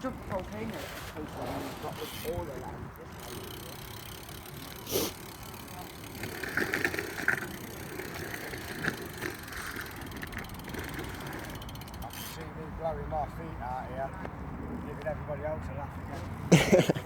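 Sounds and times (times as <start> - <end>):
bike rattling clatter: 0.0 - 12.5.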